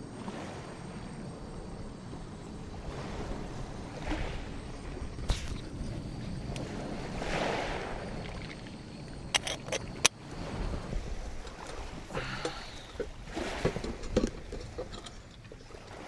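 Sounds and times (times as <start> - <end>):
ocean waves washing onto beach: 0.0 - 9.0, 9.9 - 16.0
wind and surf rumble: 0.0 - 16.0.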